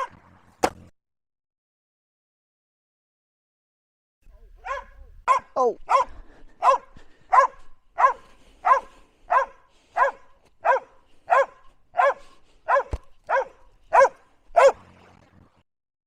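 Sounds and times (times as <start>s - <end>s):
dog barking: 4.4s - 14.8s
short thump: 12.9s - 13.2s.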